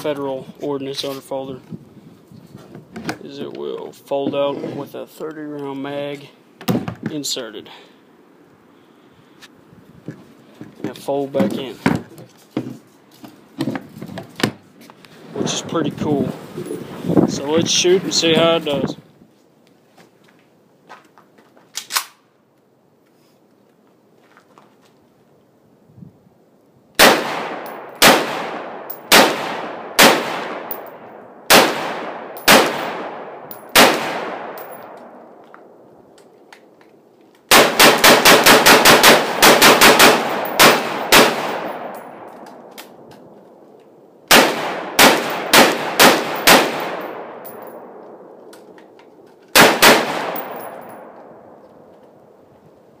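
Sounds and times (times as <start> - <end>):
rifle shots echoing: 27.0 - 35.8, 37.5 - 42.7, 44.3 - 48.4, 49.5 - 51.6.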